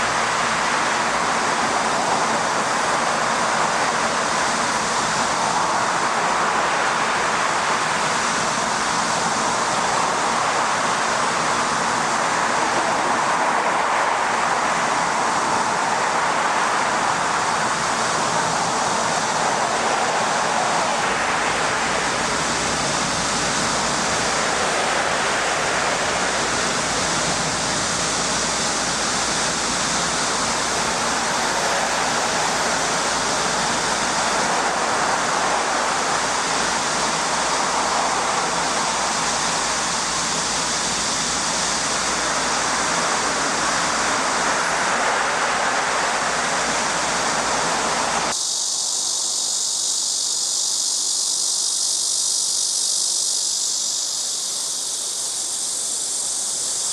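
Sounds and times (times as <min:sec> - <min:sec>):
steady wash of water: 0:00.0 - 0:48.3.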